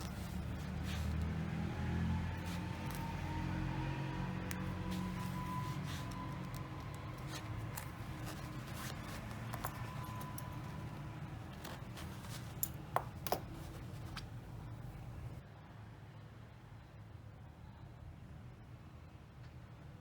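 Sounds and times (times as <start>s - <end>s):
needle ticking through fabric: 0.0s - 15.4s.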